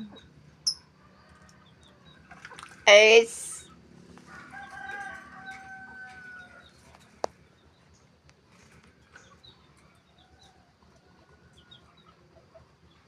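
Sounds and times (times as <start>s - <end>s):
rooster crowing faintly: 4.2s - 6.7s.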